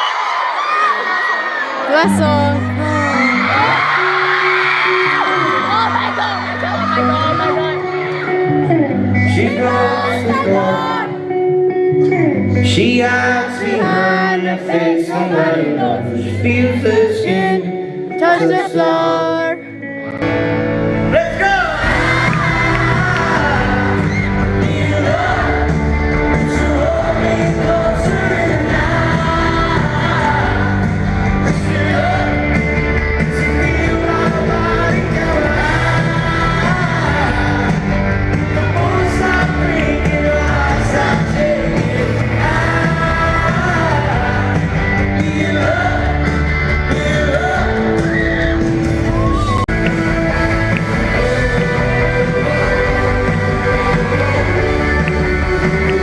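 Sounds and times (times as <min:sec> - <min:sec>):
crowd shouting along: 0:00.0 - 0:11.3, 0:21.1 - 0:25.8
live rock band playing: 0:01.9 - 0:56.0
man singing lead vocal: 0:08.6 - 0:19.7, 0:21.1 - 0:56.0.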